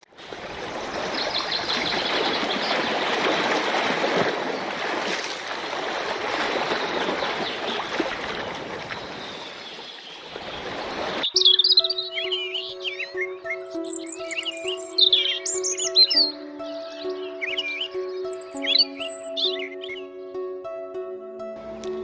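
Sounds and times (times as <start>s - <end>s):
stream water rushing: 0.2s - 20.0s
birds chirping: 0.5s - 3.8s, 5.7s - 20.9s
music: 11.3s - 22.0s.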